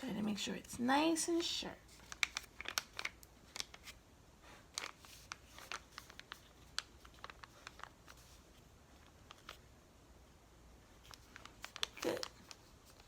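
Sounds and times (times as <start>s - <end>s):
faint paper crackles and scrapes: 1.3s - 9.7s, 10.9s - 13.0s
paper being folded and creased: 1.9s - 4.0s, 4.7s - 9.6s, 10.9s - 13.0s.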